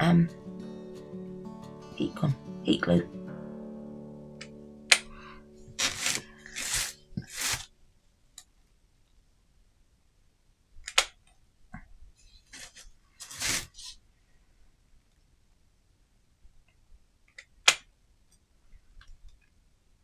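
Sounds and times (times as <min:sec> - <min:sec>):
rustling of craft pieces: 0:05.8 - 0:07.7.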